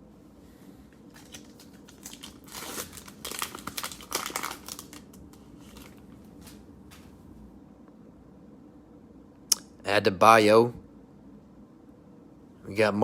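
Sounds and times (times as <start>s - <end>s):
cellophane wrapper crinkling: 1.0s - 6.6s.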